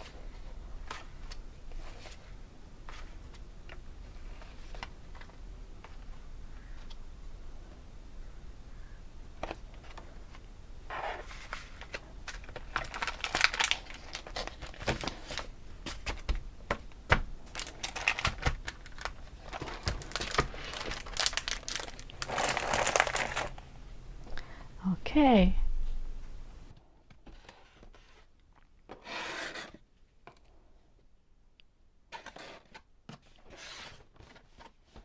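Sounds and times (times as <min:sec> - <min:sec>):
packaging crinkling: 0:11.0 - 0:16.3, 0:17.1 - 0:23.7.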